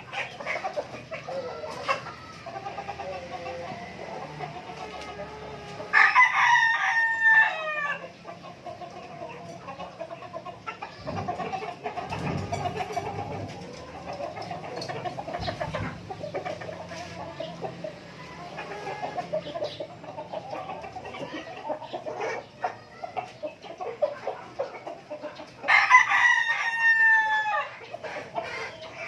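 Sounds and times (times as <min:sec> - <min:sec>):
chickens clucking: 0:00.0 - 0:29.0
rooster crowing: 0:05.9 - 0:08.0, 0:25.7 - 0:27.8.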